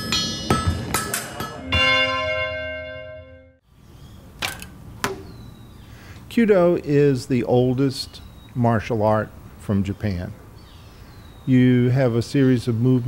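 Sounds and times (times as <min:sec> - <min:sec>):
bell-like tone ringing: 0:00.0 - 0:03.6.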